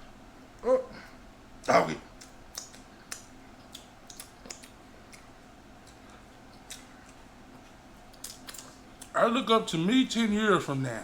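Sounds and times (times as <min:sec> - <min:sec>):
chewing and mouth smacks: 0:01.6 - 0:09.2.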